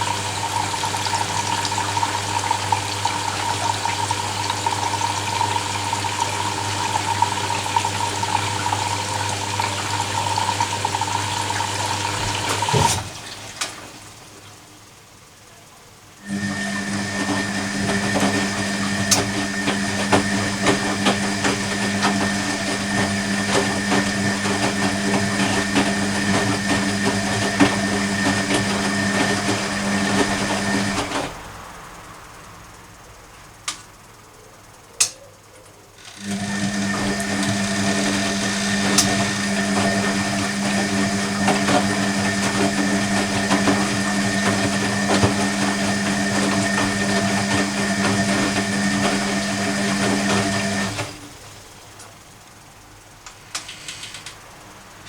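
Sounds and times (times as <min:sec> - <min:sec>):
washing machine motor humming: 0:00.0 - 0:32.1, 0:36.0 - 0:55.0
washing machine clicks: 0:10.4 - 0:13.9.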